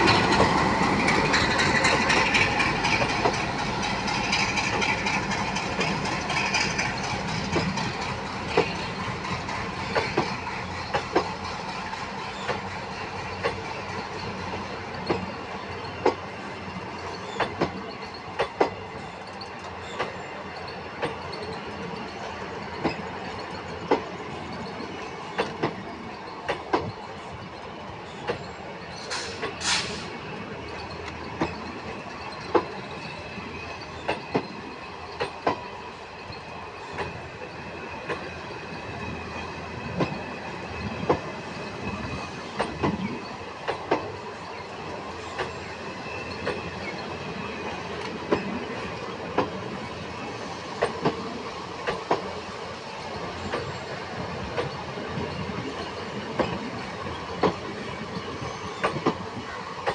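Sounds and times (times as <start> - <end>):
sharp clicks over rail joints: 0.0 - 11.4, 17.2 - 20.2, 25.3 - 25.8, 26.4 - 27.0, 35.1 - 35.6, 38.0 - 38.3, 42.6 - 44.1, 50.8 - 52.3, 58.8 - 59.9
train wheels rumbling: 0.0 - 59.9
short hisses: 29.1 - 30.2
high wheel squeal: 57.1 - 59.8.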